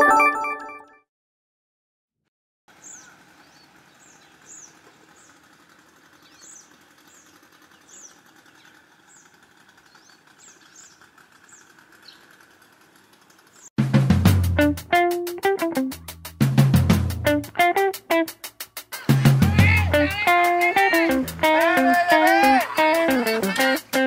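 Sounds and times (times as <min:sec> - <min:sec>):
birds chirping: 0:02.7 - 0:13.7, 0:17.6 - 0:24.0
outdoor background noise: 0:02.7 - 0:13.7.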